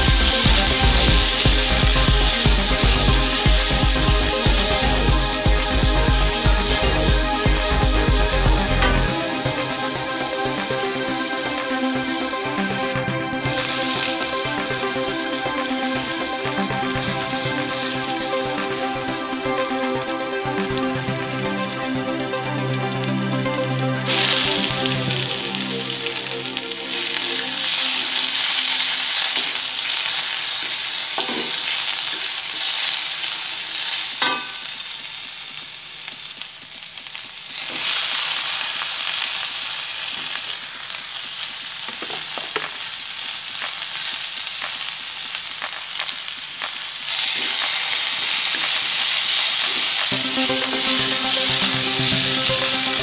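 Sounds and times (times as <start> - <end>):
hot oil sizzling in a wok: 0.0 - 53.0
spatula knocking on wok: 34.2 - 34.7.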